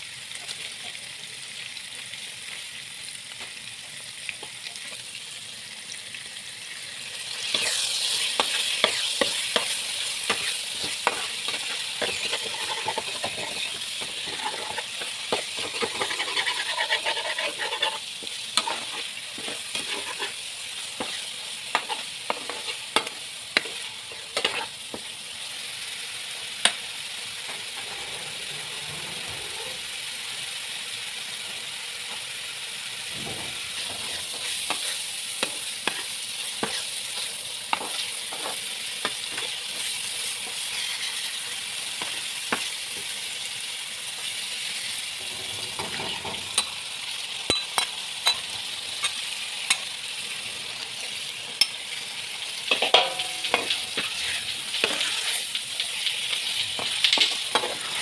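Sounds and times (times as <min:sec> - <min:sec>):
spice paste sizzling in oil: 0:00.0 - 0:58.0
spatula scraping pan: 0:07.4 - 0:25.1, 0:27.4 - 0:29.9, 0:33.2 - 0:43.1, 0:45.2 - 0:46.8, 0:52.7 - 0:58.0.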